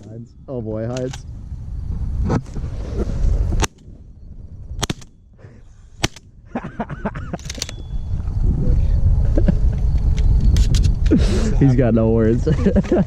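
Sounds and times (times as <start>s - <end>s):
shotgun shots: 4.8s - 5.2s, 6.0s - 6.3s.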